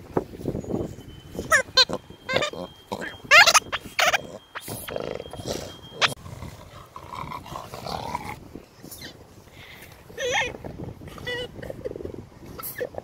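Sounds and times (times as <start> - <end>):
animal crying: 1.5 - 6.2.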